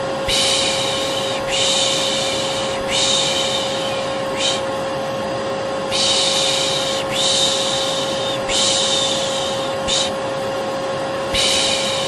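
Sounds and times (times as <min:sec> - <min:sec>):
vacuum cleaner humming: 0:00.0 - 0:12.0
person shushing: 0:00.3 - 0:04.7, 0:05.9 - 0:10.2, 0:11.3 - 0:12.0.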